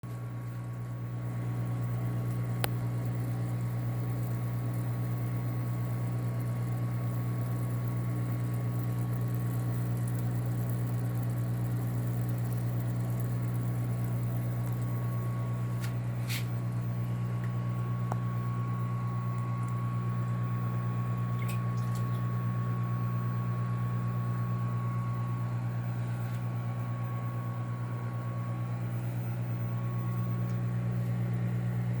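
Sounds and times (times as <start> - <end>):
aquarium equipment hum: 0.0 - 32.0.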